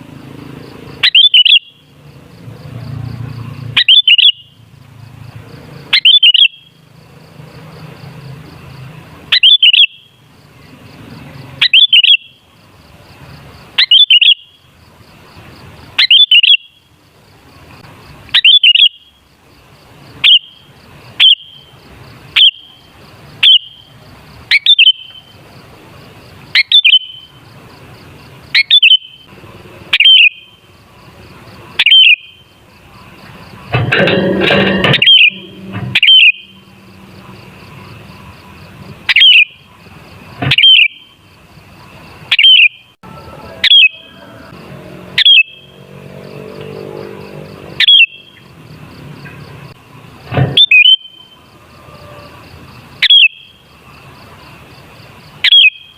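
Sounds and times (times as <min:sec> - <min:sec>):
bulbul singing whistled phrase: 0:01.0 - 0:01.8, 0:03.8 - 0:04.5, 0:06.0 - 0:06.7, 0:09.3 - 0:10.1, 0:11.6 - 0:12.4, 0:16.0 - 0:16.8, 0:18.4 - 0:19.1, 0:20.2 - 0:20.6, 0:21.2 - 0:21.7, 0:22.4 - 0:22.7, 0:23.4 - 0:23.9, 0:24.5 - 0:25.3, 0:26.6 - 0:27.3, 0:28.6 - 0:29.2, 0:30.0 - 0:30.6, 0:31.8 - 0:32.5, 0:35.0 - 0:35.4, 0:36.0 - 0:36.6, 0:40.5 - 0:41.1, 0:42.3 - 0:44.2, 0:53.0 - 0:53.6, 0:55.5 - 0:55.9.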